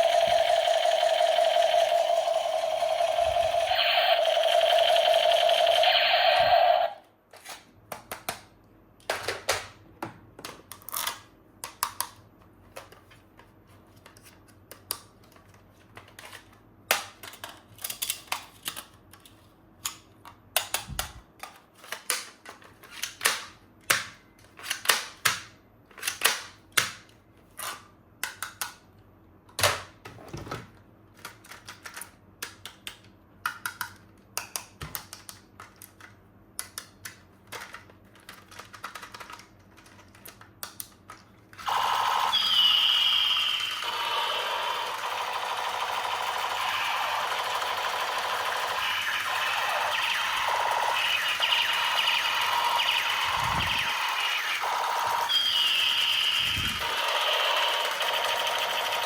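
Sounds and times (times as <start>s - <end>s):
steady electronic tone: 0.0s - 7.0s, 41.7s - 56.8s
plastic toy parts clicking: 10.4s - 13.0s, 14.0s - 27.0s, 27.6s - 28.8s, 31.1s - 41.3s.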